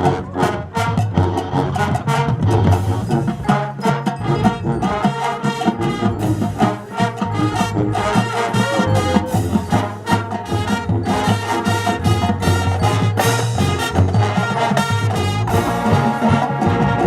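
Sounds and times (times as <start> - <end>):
brass section playing: 0.0 - 17.0
percussion keeping a steady beat: 0.0 - 17.0.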